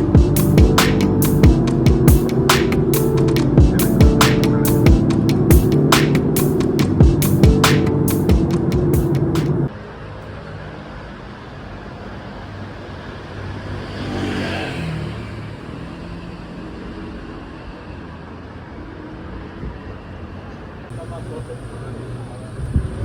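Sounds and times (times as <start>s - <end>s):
road traffic noise: 0.0s - 23.0s
vehicle passing: 13.3s - 17.1s.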